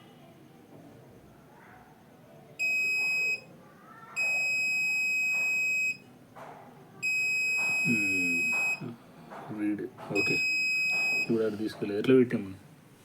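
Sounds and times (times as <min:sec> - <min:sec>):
electronic buzzer beeping: 0:02.6 - 0:03.5, 0:04.2 - 0:06.0, 0:07.0 - 0:08.9, 0:10.2 - 0:11.4.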